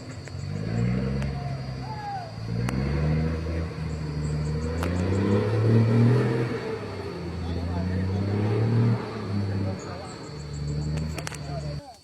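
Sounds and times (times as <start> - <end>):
truck engine revving: 0.0 - 12.0
sharp clicks: 10.8 - 12.0.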